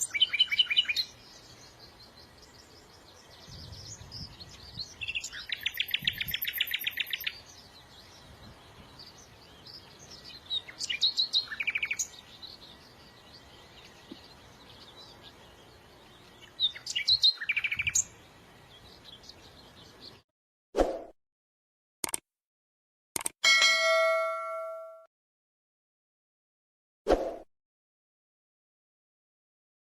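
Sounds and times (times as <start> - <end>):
songbirds singing: 0.0 - 20.2
brief clicks: 22.0 - 22.2, 23.2 - 23.4.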